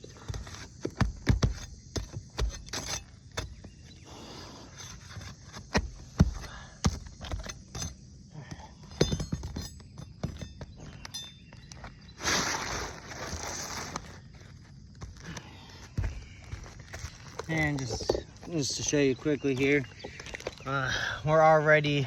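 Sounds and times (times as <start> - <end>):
shingles tearing and cracking: 0.0 - 3.7, 4.7 - 7.9, 12.2 - 18.4
shingles knocking and scraping: 0.0 - 21.0.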